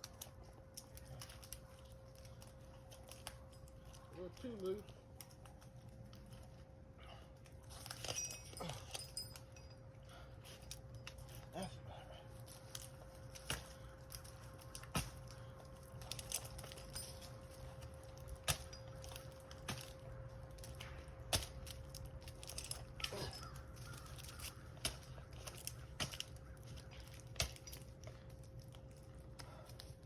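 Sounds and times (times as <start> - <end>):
climbing spikes stabbing tree trunk: 17.8 - 28.2.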